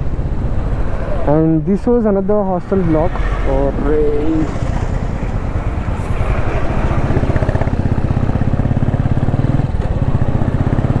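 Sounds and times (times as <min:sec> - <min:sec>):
road noise: 0:00.0 - 0:11.0
wind: 0:00.0 - 0:11.0
motorcycle engine running: 0:02.8 - 0:11.0.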